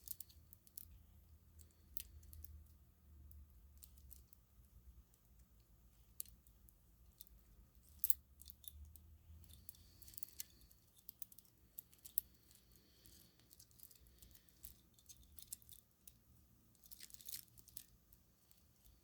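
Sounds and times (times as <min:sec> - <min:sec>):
cord rustling: 0:09.4 - 0:19.0.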